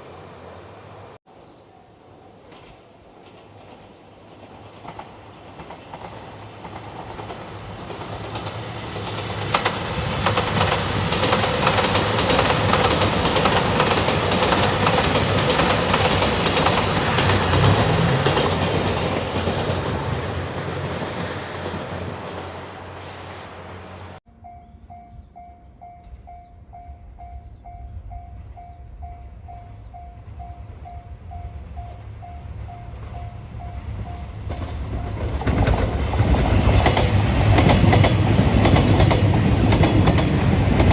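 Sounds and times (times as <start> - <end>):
train passing: 0.0 - 40.9
wheels clacking over rail joints: 2.5 - 23.0, 34.0 - 40.9
level-crossing warning bell: 24.4 - 35.4.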